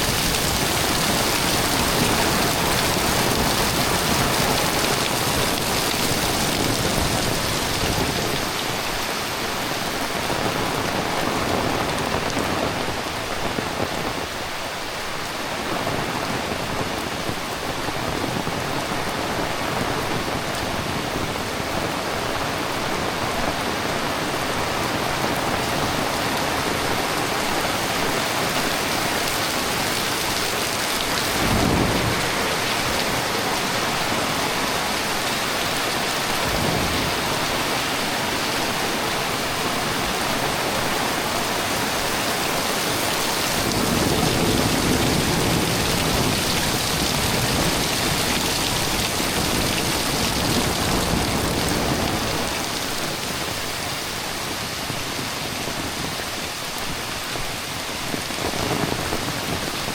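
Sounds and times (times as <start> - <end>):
heavy rain: 0.0 - 59.9
rolling thunder rumble: 28.4 - 35.2, 36.1 - 41.9, 43.4 - 52.7
thunder crack: 31.1 - 33.9.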